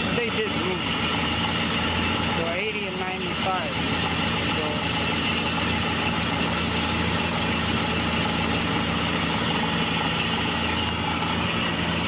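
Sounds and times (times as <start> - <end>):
car engine idling low hum: 0.0 - 12.0.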